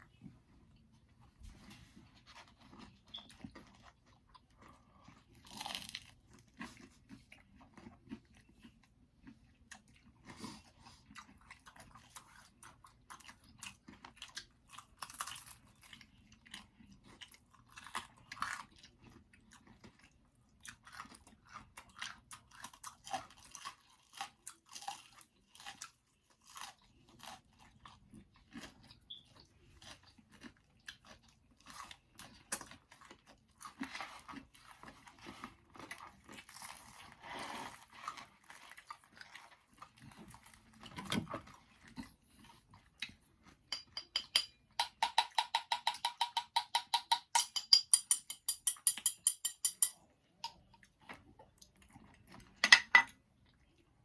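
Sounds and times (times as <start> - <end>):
pizza crunching while chewing: 2.1 - 43.7.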